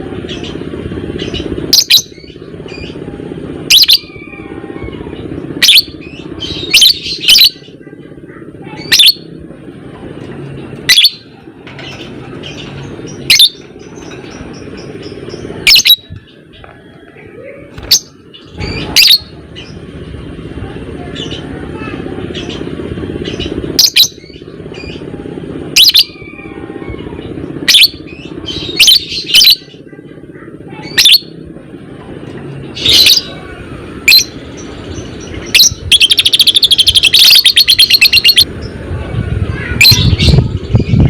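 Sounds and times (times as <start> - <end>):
low background rumble: 0.0 - 41.0
faint bird chirping: 34.1 - 38.8
bird giving shrill chirps: 35.4 - 38.4.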